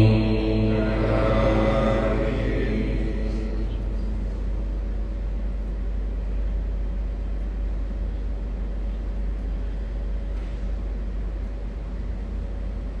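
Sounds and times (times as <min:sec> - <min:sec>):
low rumble: 0:00.0 - 0:07.9
thin constant hum: 0:00.0 - 0:13.0.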